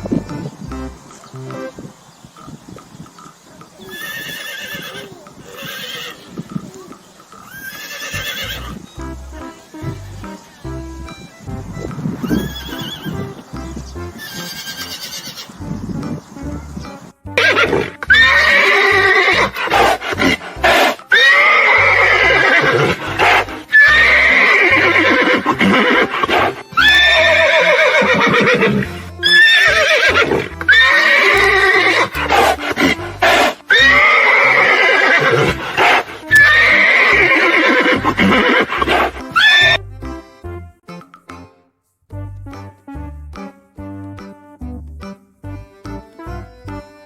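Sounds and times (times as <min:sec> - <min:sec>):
horse whinnying: 0:03.8 - 0:08.8, 0:12.2 - 0:13.4, 0:14.2 - 0:15.6, 0:17.4 - 0:39.8.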